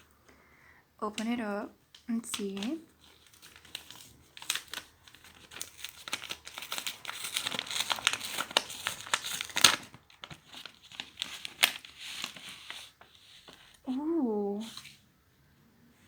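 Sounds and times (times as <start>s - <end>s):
packaging crinkling: 2.2s - 13.1s
tape tearing: 2.3s - 12.9s.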